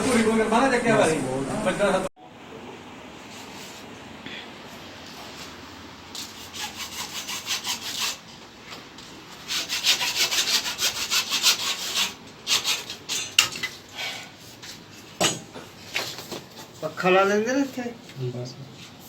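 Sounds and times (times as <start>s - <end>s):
hand saw cutting: 6.2s - 8.2s, 9.5s - 13.4s.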